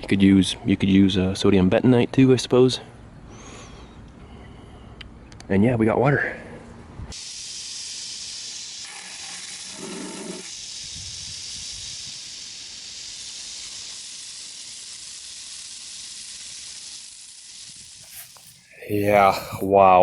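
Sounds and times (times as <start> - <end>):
water rushing hiss: 7.2 - 19.7.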